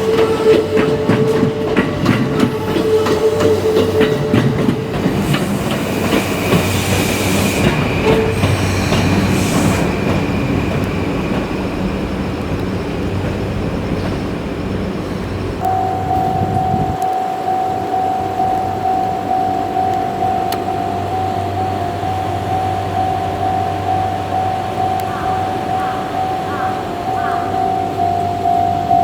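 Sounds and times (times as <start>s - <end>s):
train wheels clicking over rail joints: 0.0s - 17.2s
train high whine: 0.0s - 29.0s
train running rumble: 0.0s - 29.0s.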